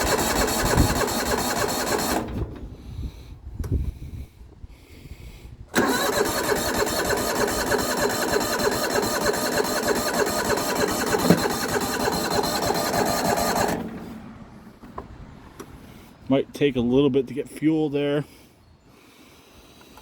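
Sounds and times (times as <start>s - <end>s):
starter cranking engine: 0.0s - 2.6s, 5.7s - 14.9s.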